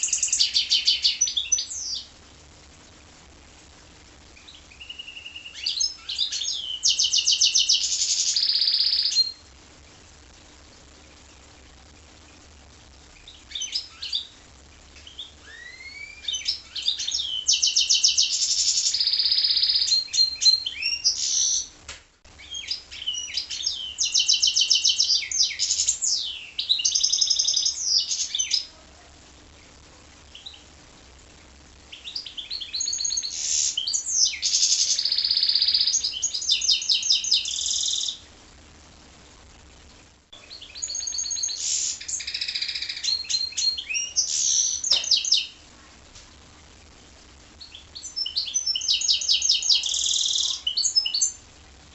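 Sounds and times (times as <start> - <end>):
bird singing with fast trills: 0.0 - 2.1, 4.4 - 9.4, 15.0 - 21.7, 22.4 - 28.7, 31.9 - 38.2, 40.4 - 45.6, 47.6 - 51.4.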